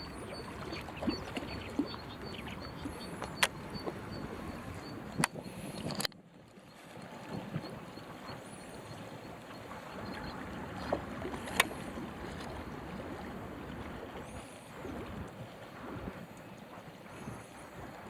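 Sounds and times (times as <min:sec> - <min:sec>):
small waves slapping: 0:00.0 - 0:06.1, 0:06.7 - 0:18.0
water lapping: 0:00.0 - 0:18.0
wind: 0:00.0 - 0:18.0
gusty wind on microphone: 0:09.9 - 0:18.0.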